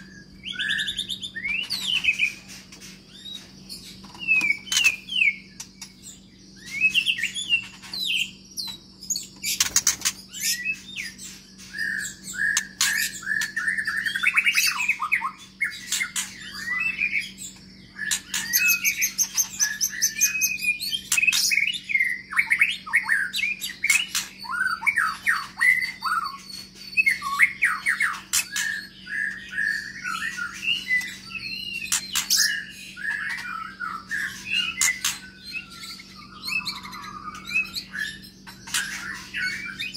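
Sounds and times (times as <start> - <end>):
bird singing whistled phrases: 0.0 - 2.4, 10.4 - 39.9
faint steady hum: 0.0 - 39.9.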